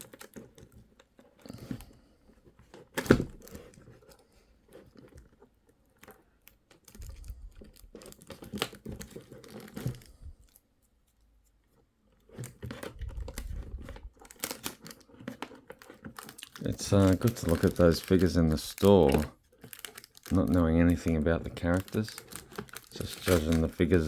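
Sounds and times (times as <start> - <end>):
plastic packaging crinkling: 0.0 - 0.7, 6.0 - 10.6, 12.3 - 24.0.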